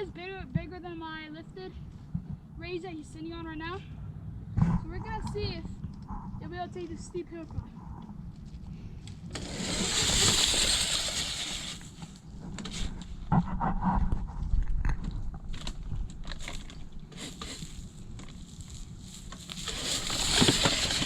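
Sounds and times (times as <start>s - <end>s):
electric dirt bike rushing hiss: 9.3s - 12.1s, 19.1s - 21.0s.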